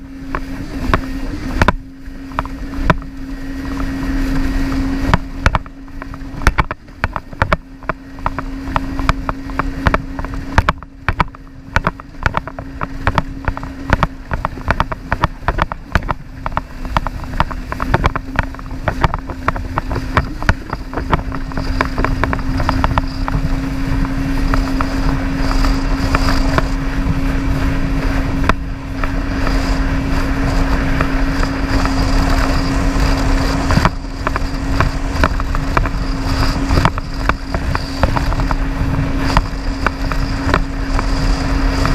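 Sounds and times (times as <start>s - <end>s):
jet ski engine running: 0.0s - 41.9s
wind buffeting microphone: 0.0s - 41.9s.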